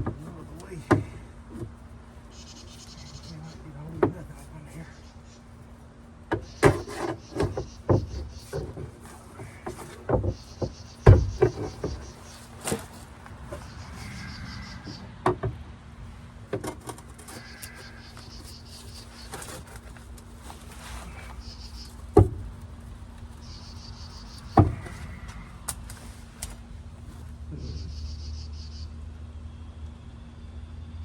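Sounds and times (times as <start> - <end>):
knocks and clunks on car door: 9.6 - 12.2.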